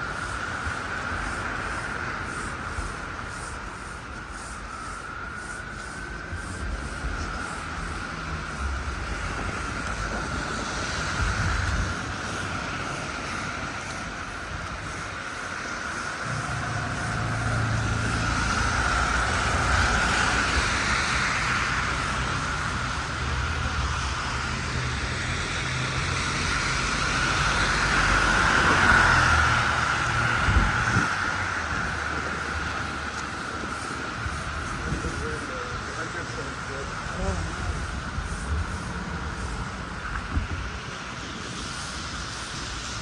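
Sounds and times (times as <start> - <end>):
vehicles driving past: 0.0 - 43.0.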